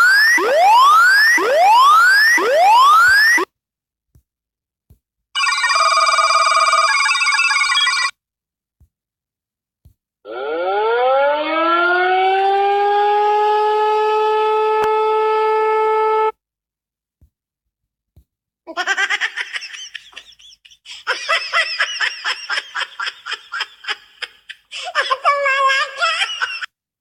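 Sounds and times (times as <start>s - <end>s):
horn-like blare: 10.3s - 16.4s
high-pitched giggling: 18.7s - 26.7s.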